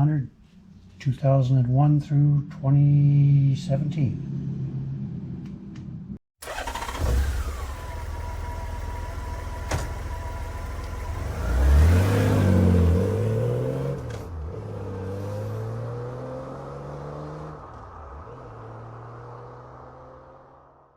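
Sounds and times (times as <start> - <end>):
motorcycle engine revving: 6.4 - 20.6.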